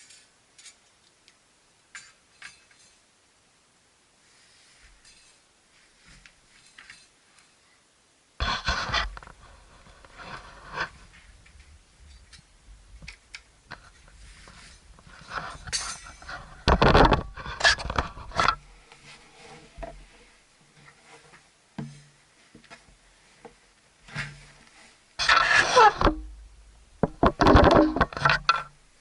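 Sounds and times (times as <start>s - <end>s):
metal camp gear clinking: 0.0s - 0.9s, 1.9s - 3.0s, 5.0s - 5.4s, 13.1s - 18.6s.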